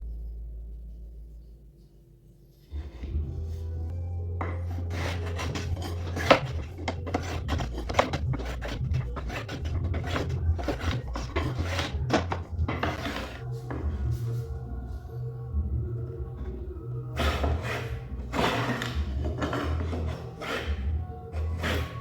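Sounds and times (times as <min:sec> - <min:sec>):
rasp shaping wood: 0:04.4 - 0:14.4, 0:17.2 - 0:22.0.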